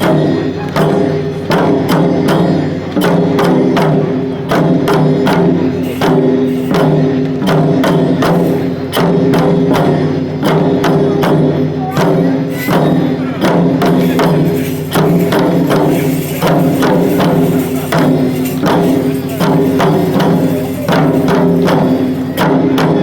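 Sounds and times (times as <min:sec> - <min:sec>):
drum strokes in quick rhythm: 0:00.0 - 0:23.0.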